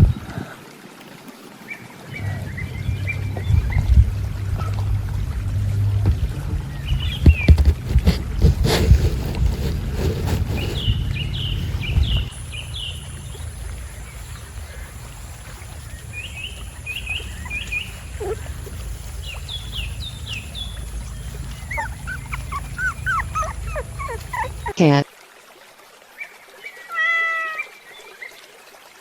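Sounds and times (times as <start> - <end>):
steady low rumble: 2.1 - 24.8
high chirping animal calls: 10.6 - 24.8.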